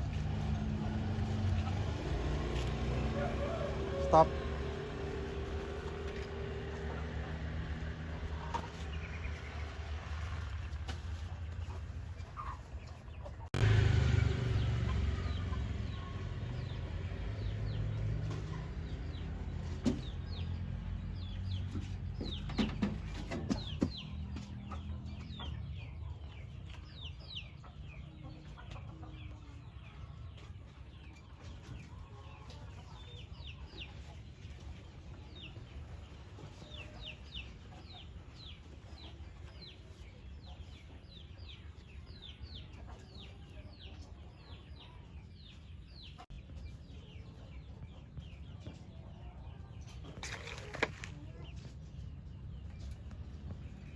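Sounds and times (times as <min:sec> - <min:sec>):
chickens clucking and chirping: 0:00.0 - 0:53.9
machine engine humming: 0:13.6 - 0:18.4.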